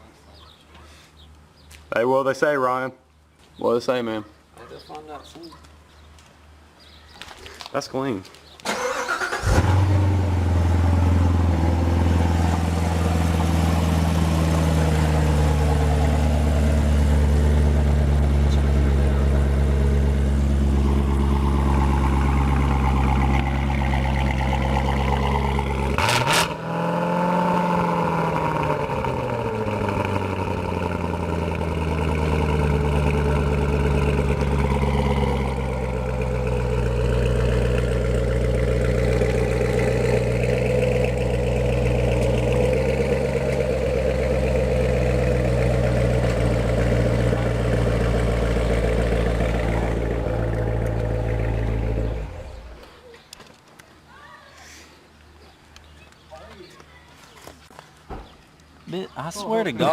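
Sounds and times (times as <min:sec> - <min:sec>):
car engine running: 0:09.4 - 0:52.8.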